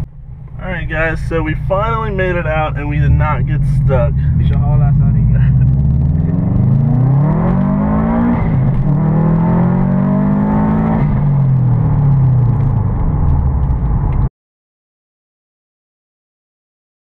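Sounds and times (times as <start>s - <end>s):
car engine accelerating hard: 0.0s - 14.3s.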